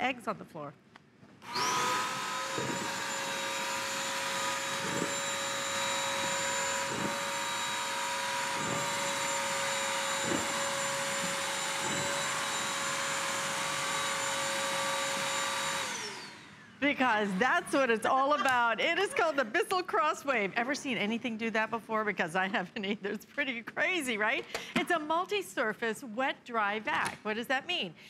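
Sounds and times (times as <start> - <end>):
vacuum cleaner motor whine: 1.4 - 16.8.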